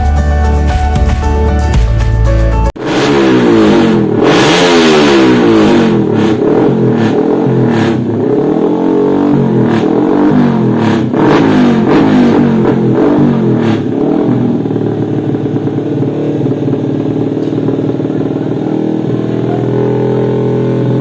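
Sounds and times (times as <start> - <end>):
motocross engines revving: 2.8 - 15.2.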